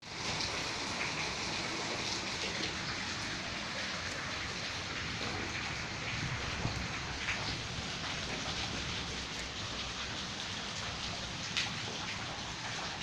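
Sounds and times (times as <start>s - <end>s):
hail and rain falling: 0.0s - 13.0s
hailstones ticking on surfaces: 4.0s - 13.0s.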